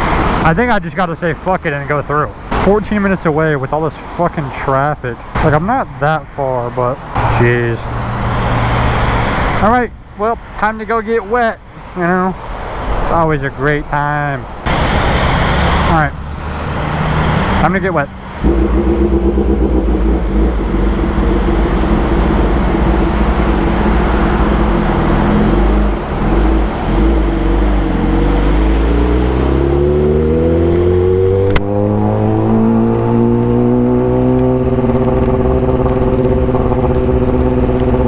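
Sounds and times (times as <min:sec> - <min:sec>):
motorcycle engine revving: 0:16.6 - 0:38.0
sharp click: 0:31.5 - 0:31.7.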